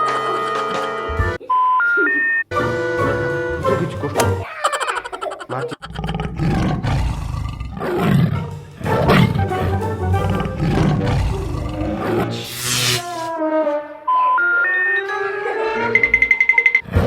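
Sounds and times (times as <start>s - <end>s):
background music: 2.5s - 4.4s, 8.4s - 16.8s.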